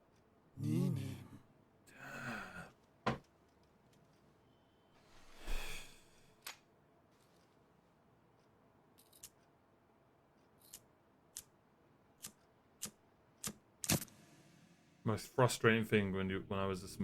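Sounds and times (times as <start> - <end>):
person sighing: 0.6 - 2.8.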